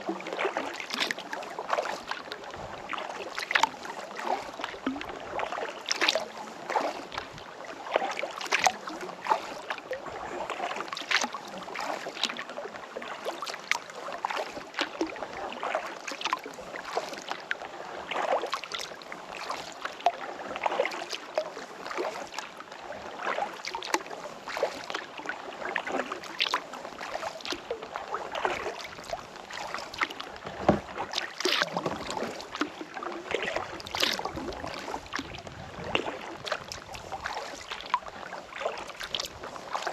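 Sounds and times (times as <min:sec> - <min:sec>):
paddle splashes and drips: 0:00.0 - 0:39.9
water lapping at hull: 0:00.0 - 0:39.9.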